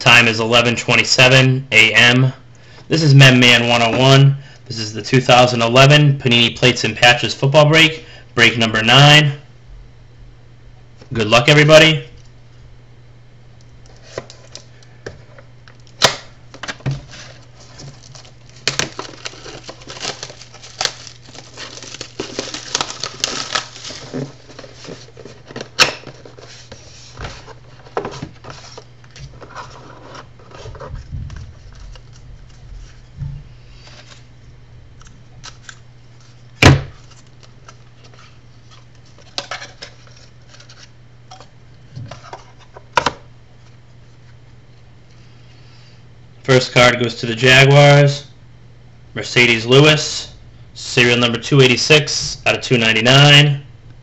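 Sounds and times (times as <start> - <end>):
low steady hum: 0.0 - 54.0
cardboard handling: 16.6 - 33.2
wrapper tearing and crinkling: 17.8 - 25.4.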